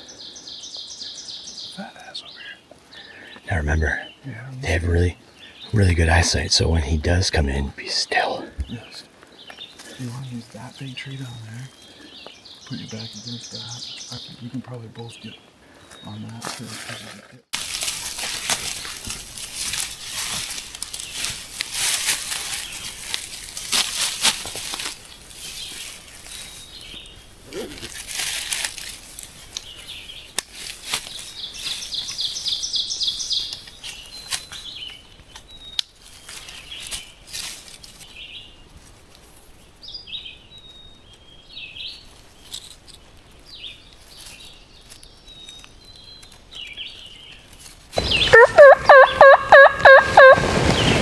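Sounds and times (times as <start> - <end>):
songbirds chirping: 0.0 - 16.4, 25.0 - 27.4, 29.4 - 30.4, 31.1 - 38.9, 39.7 - 51.0
leaves rustling: 17.6 - 32.0, 36.0 - 39.7, 46.9 - 51.0
turkey gobbling: 48.0 - 51.0.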